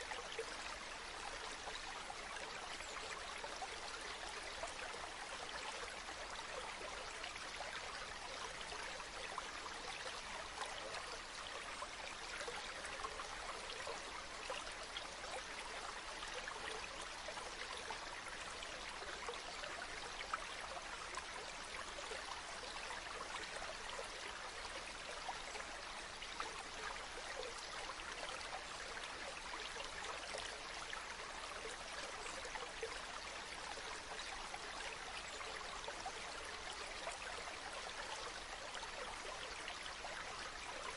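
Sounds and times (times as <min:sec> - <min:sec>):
stream babbling: 0:00.0 - 0:40.9.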